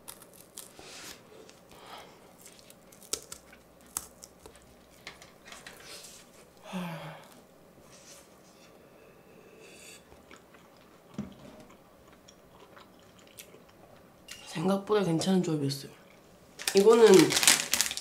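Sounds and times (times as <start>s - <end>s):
chewing with clicks and smacks: 10.1s - 13.8s
paper rustle: 16.6s - 18.0s.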